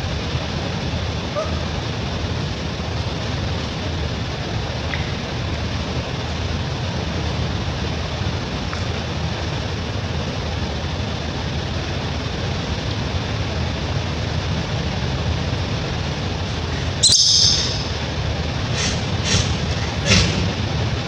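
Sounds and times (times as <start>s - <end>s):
low background rumble: 13.7s - 21.0s
baby monkey squealing: 16.4s - 20.9s.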